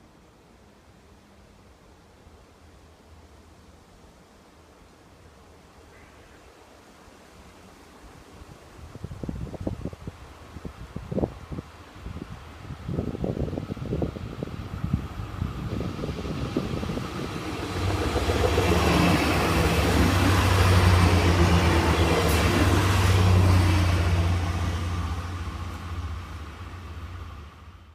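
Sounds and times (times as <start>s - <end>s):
train passing: 11.9s - 27.9s.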